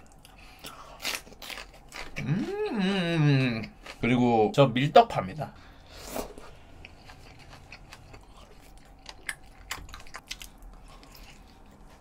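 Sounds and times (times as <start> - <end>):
chewing rice cake: 0.0 - 4.1, 6.8 - 12.0.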